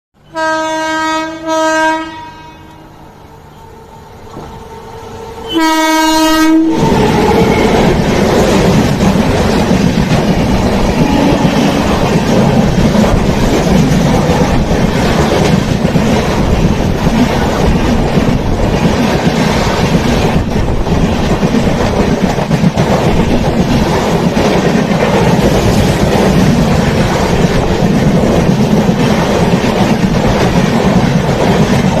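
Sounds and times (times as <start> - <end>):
train horn blast: 0.2 - 4.0, 5.2 - 7.8, 11.0 - 12.0
train wheels rumbling and clacking: 4.1 - 32.0.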